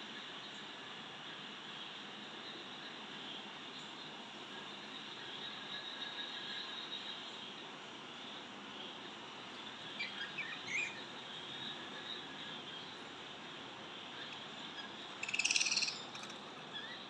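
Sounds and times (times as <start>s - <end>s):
budgerigars chirping: 15.2s - 16.4s.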